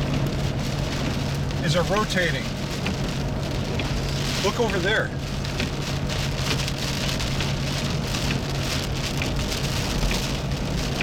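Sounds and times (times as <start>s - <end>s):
rain on car roof: 0.0s - 11.0s.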